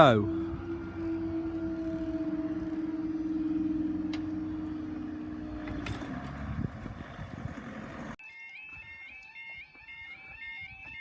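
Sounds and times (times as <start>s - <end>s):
barrier motor hum: 0.0s - 8.2s.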